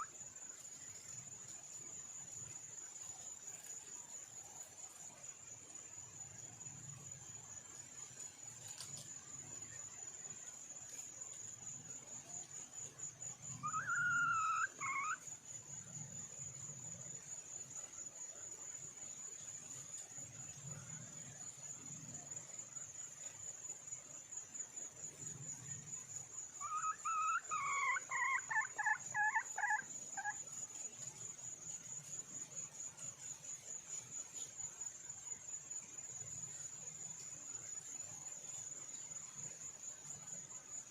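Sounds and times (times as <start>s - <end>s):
insect trilling: 0.0s - 1.4s, 13.0s - 15.6s, 25.6s - 30.7s
hen clucking: 26.6s - 30.4s.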